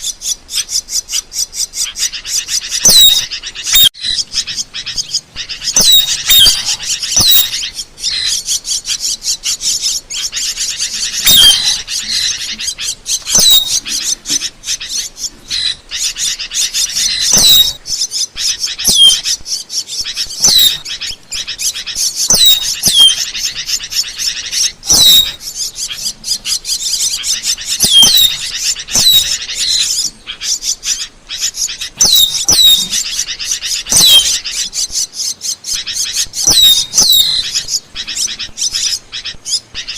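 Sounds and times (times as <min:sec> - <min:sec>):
starlings chattering: 0:00.0 - 0:39.9
down-slurred bird whistles: 0:02.8 - 0:12.3, 0:13.1 - 0:14.4, 0:15.5 - 0:19.4, 0:20.1 - 0:20.9, 0:21.6 - 0:25.5, 0:26.3 - 0:30.2, 0:30.8 - 0:35.1, 0:35.7 - 0:39.9.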